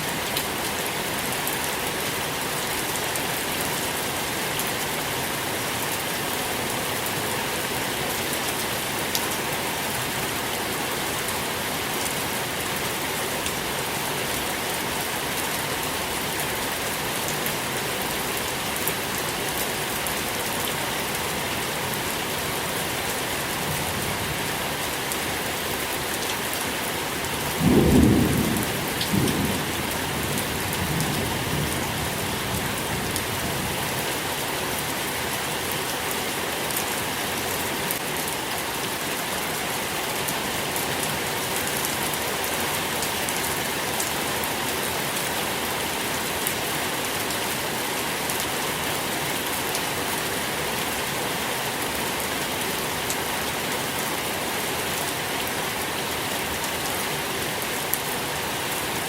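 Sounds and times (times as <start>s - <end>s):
steady rain falling: 0.0s - 59.0s
low thunder rumble: 27.6s - 31.8s.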